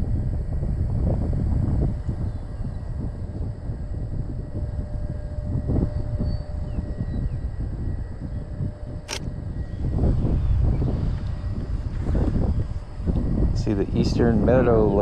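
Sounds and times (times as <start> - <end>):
wind buffeting microphone: 0.0 - 15.0
sharp click: 9.1 - 9.3.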